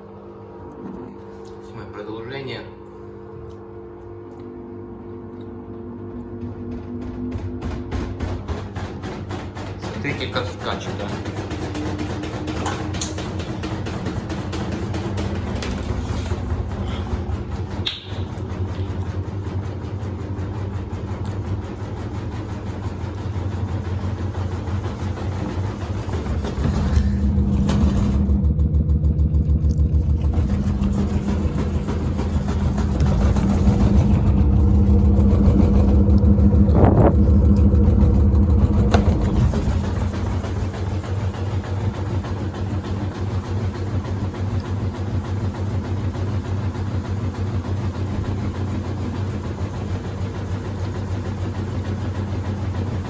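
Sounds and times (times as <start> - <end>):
washer-dryer drum spinning: 5.6 - 53.0
fast even knocking in drum: 24.0 - 40.9.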